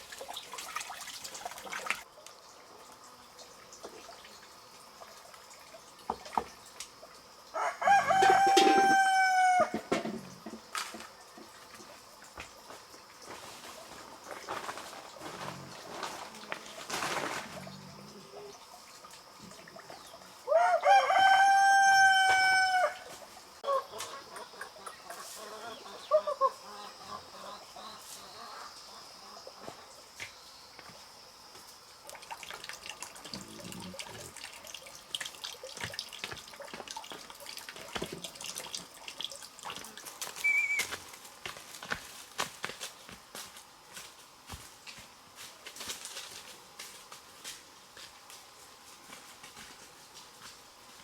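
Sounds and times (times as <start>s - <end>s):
rooster crowing: 7.5s - 10.0s, 20.4s - 23.9s
chicken clucking: 23.6s - 29.8s.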